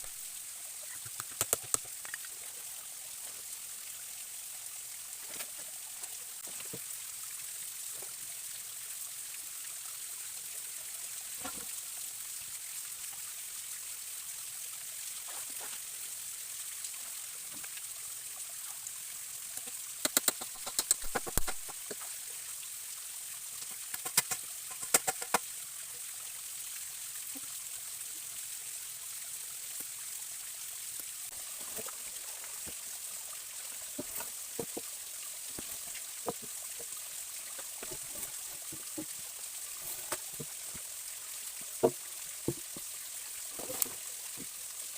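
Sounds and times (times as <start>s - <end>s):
stream running: 0.0s - 44.9s
sharp clicks or knocks: 20.0s - 21.7s.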